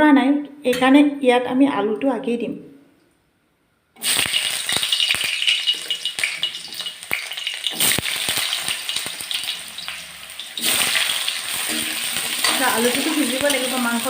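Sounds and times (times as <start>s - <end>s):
potatoes sizzling in hot oil: 4.0s - 14.0s
spatula stirring in pan: 4.4s - 14.0s.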